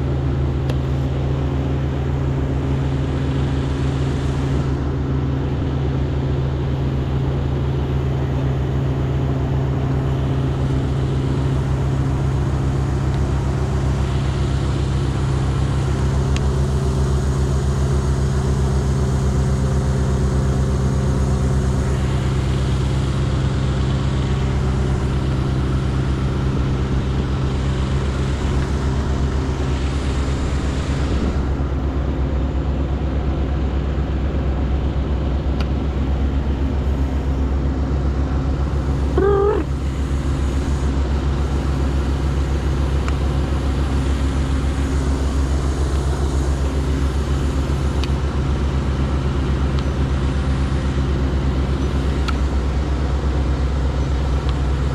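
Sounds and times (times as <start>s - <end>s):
engine running steadily: 0.0s - 54.9s
wavering high-pitched squeal: 39.2s - 39.7s.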